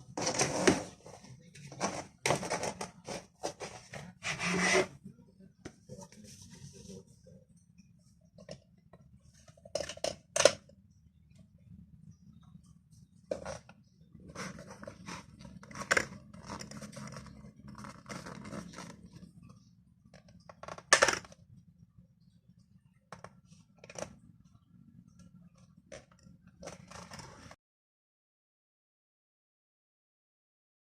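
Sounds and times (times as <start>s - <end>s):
small objects clicking and scraping: 14.3s - 19.3s.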